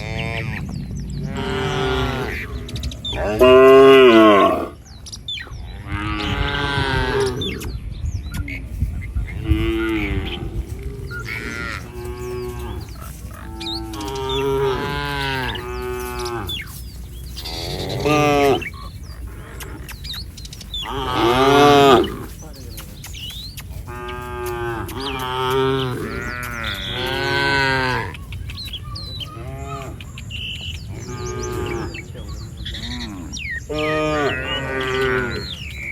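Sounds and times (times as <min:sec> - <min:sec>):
cattle mooing: 0:00.0 - 0:04.8, 0:09.4 - 0:16.8, 0:17.4 - 0:20.0, 0:20.8 - 0:22.4, 0:23.9 - 0:28.2, 0:30.7 - 0:35.8.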